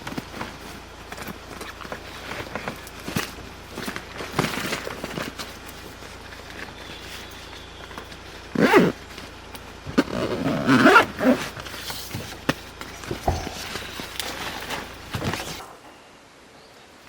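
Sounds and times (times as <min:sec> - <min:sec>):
handling clicks and knocks: 0:00.0 - 0:15.7
zipper pulled: 0:08.5 - 0:09.0, 0:09.9 - 0:12.4.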